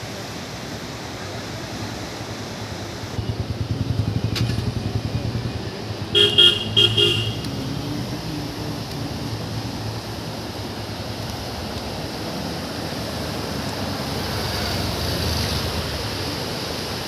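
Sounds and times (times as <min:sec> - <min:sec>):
vehicle engine rumbling: 0:03.2 - 0:16.9
vehicle horn honks: 0:06.2 - 0:07.5.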